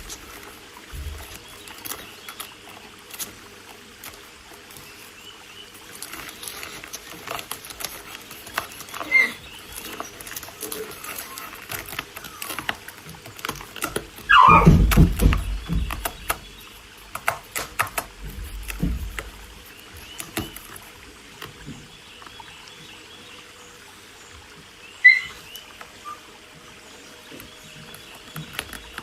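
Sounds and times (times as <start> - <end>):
light scratching: 5.7 - 21.0.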